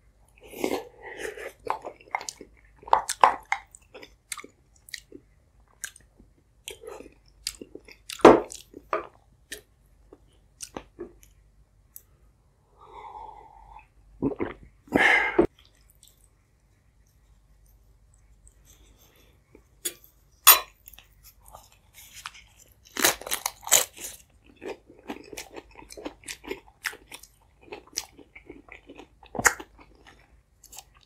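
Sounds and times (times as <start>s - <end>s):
chewing and swallowing: 24.4s - 31.0s.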